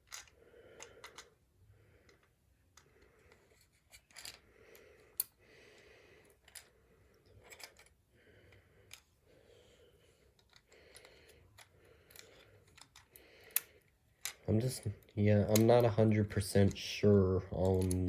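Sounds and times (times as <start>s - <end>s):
plastic toy parts clicking: 0.0s - 1.3s, 10.4s - 14.8s, 17.5s - 18.0s.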